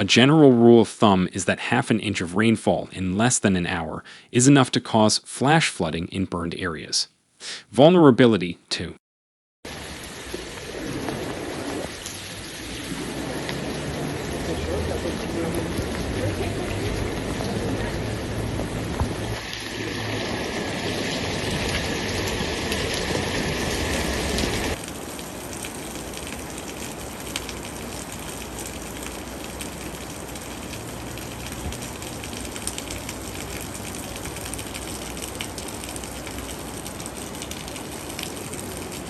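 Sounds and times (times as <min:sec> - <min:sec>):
floodwater rushing: 0:09.7 - 0:39.0
rain: 0:09.7 - 0:39.0.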